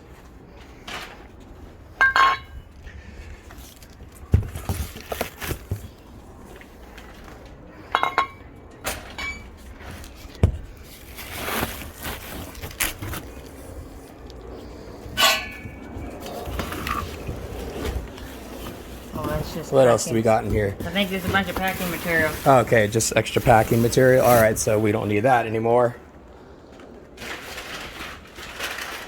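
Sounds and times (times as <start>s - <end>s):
metal pipes clinking: 2.0s - 2.8s, 7.9s - 9.6s, 15.1s - 17.2s.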